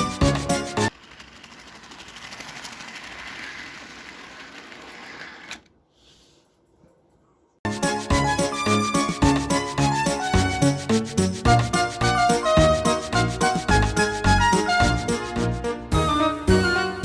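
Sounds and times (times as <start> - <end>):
model locomotive motor whirring: 0.0 - 5.7.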